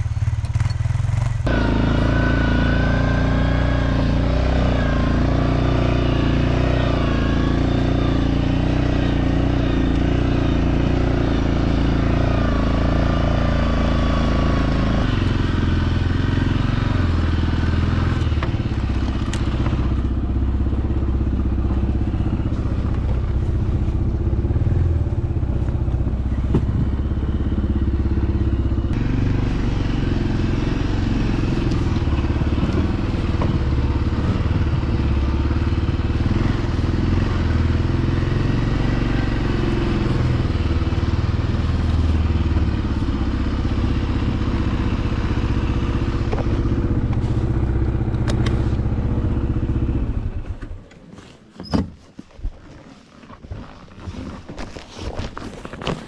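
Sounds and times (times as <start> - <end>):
vehicle engine running: 0.0 - 51.4
thumps and rattles: 26.4 - 27.1.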